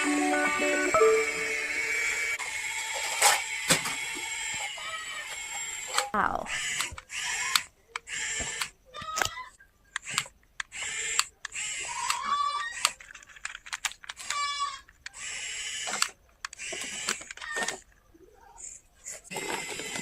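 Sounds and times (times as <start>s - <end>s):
plastic toys clicking and rattling: 2.7s - 18.0s, 18.6s - 20.0s
rapid ratchet-like clicks: 15.0s - 17.5s.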